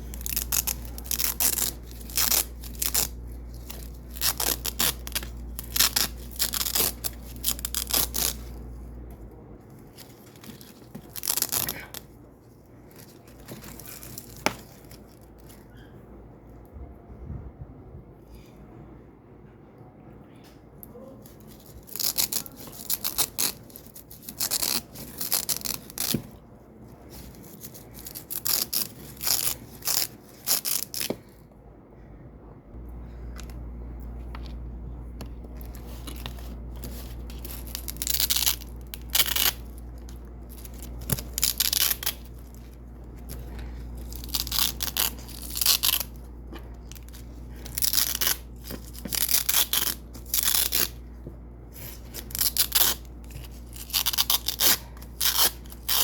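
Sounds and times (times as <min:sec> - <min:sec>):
velcro ripping: 0:00.0 - 0:08.6, 0:09.9 - 0:12.1, 0:21.3 - 0:26.4, 0:27.1 - 0:31.2, 0:35.6 - 0:46.3, 0:46.9 - 0:51.0, 0:51.7 - 0:56.0
low steady hum: 0:00.0 - 0:56.0.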